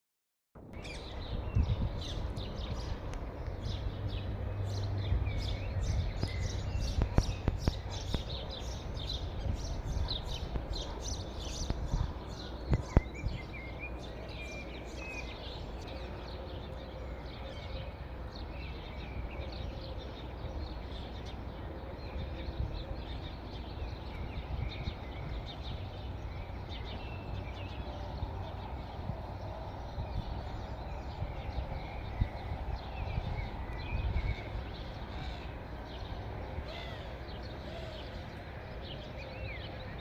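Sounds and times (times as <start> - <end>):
steady low rumble: 0.6 - 40.0
small birds chirping: 0.8 - 40.0.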